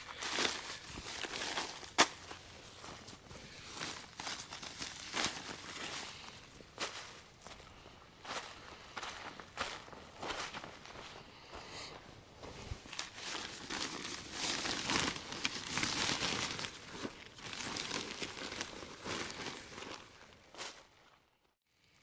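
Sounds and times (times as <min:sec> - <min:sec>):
camp gear crinkling and rustling: 0:00.0 - 0:07.7, 0:12.0 - 0:21.2
scuffing footsteps: 0:00.1 - 0:04.5, 0:05.1 - 0:13.5.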